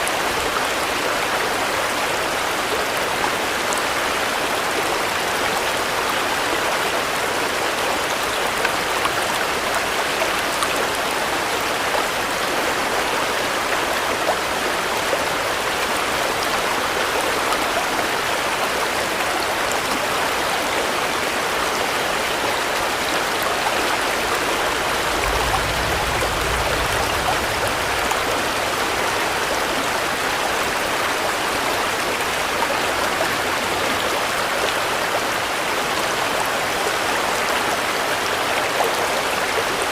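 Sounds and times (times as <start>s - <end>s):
steady rain: 0.0s - 39.9s
low rumble: 24.6s - 29.3s.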